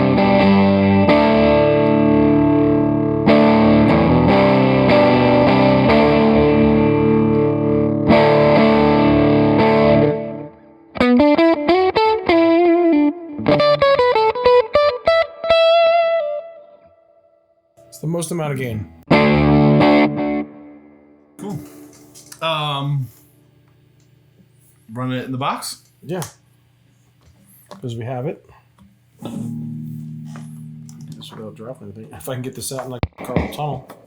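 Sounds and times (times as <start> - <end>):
distorted electric guitar chords: 0.0 - 16.8, 18.9 - 21.4, 29.2 - 33.6
electric guitar single notes: 0.0 - 17.4, 29.2 - 32.4.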